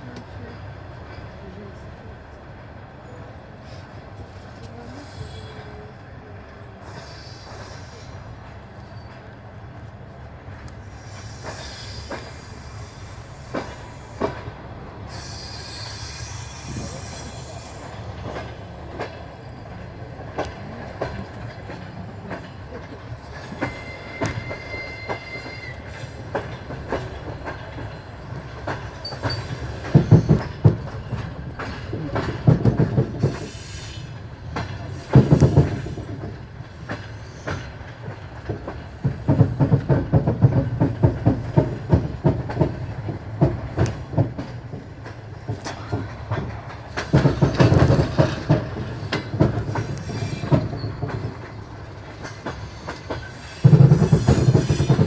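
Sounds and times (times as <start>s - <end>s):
train rumble: 0.0s - 55.0s
wheels clickety-clack over rail joints: 0.0s - 55.0s.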